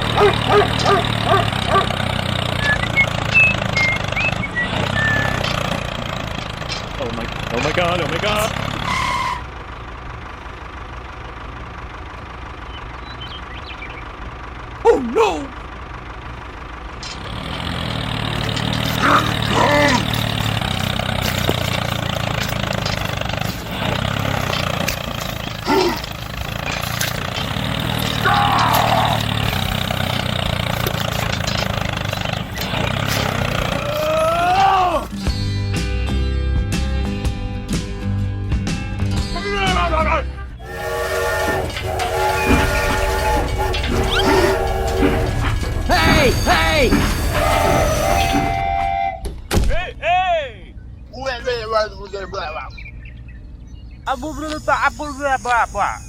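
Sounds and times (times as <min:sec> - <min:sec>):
small engine humming: 0:00.0 - 0:14.9, 0:15.5 - 0:35.6, 0:40.5 - 0:49.1
person exclaiming: 0:14.8 - 0:15.6, 0:33.8 - 0:35.1
thin high squeaks: 0:40.6 - 0:49.3.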